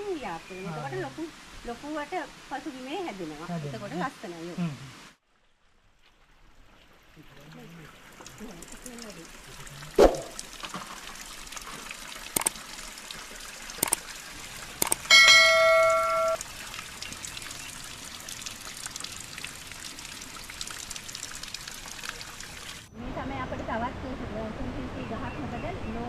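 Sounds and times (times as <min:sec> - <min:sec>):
stream water trickling: 0:05.3 - 0:23.0
sharp clicks: 0:12.4 - 0:12.6, 0:13.8 - 0:14.0, 0:14.8 - 0:15.1
bell-like ringing tone: 0:15.1 - 0:16.4.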